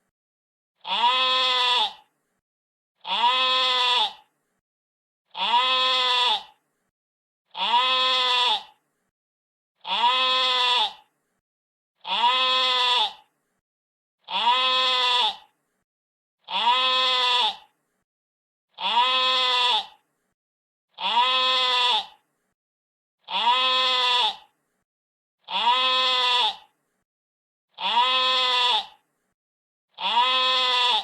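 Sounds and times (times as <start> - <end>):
sheep bleating: 0.8 - 2.1, 3.0 - 4.3, 5.3 - 6.6, 7.5 - 8.8, 9.8 - 11.1, 12.0 - 13.3, 14.3 - 15.5, 16.5 - 17.7, 18.8 - 20.0, 21.0 - 22.2, 23.3 - 24.5, 25.5 - 26.7, 27.8 - 29.0, 30.0 - 31.0.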